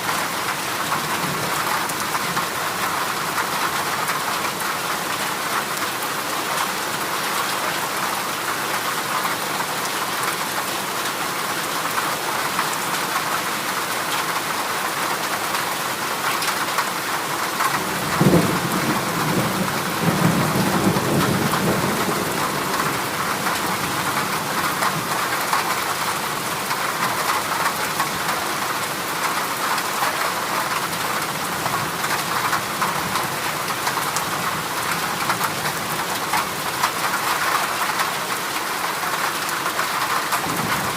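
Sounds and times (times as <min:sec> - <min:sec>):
heavy rain on metal roof: 0:00.0 - 0:40.9
thunder rumbling: 0:40.4 - 0:40.9.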